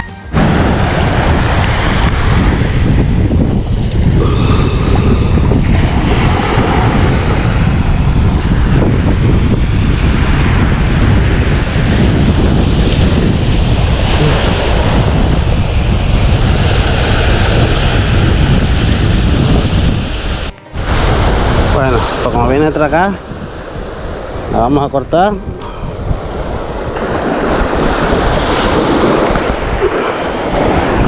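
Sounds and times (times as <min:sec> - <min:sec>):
surf breaking: 0:00.3 - 0:03.0
wind buffeting microphone: 0:00.4 - 0:31.0.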